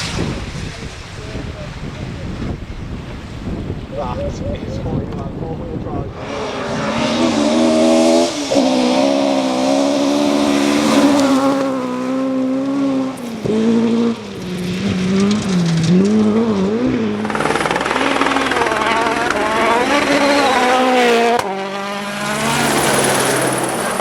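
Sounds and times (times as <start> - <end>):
rally car engine at high revs: 6.1 - 24.0.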